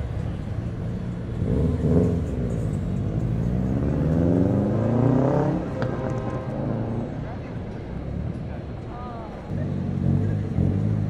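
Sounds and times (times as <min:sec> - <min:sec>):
car engine revving and accelerating: 0:01.3 - 0:07.2, 0:09.4 - 0:11.0.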